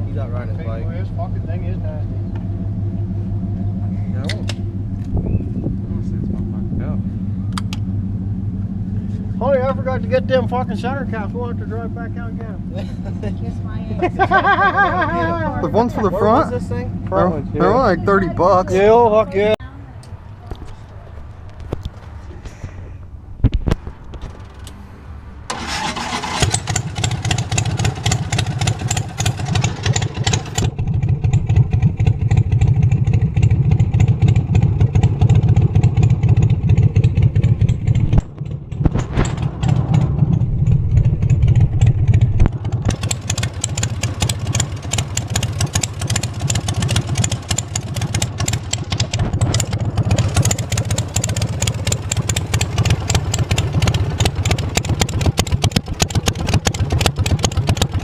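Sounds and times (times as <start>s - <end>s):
engine starting and running loud: 23.8s - 58.0s.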